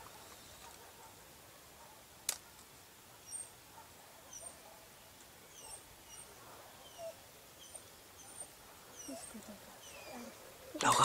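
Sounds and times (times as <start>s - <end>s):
small birds chirping: 4.3s - 11.0s.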